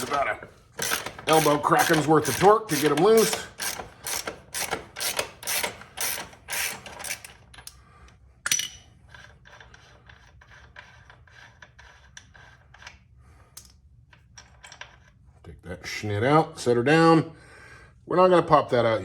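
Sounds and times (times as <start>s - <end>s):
ratchet wrench clicking: 0.8s - 7.8s.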